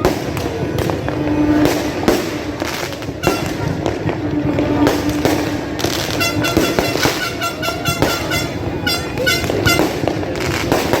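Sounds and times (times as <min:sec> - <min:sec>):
fireworks banging and crackling: 0:00.0 - 0:11.0
horns tooting short blasts: 0:03.2 - 0:03.7, 0:06.0 - 0:10.0.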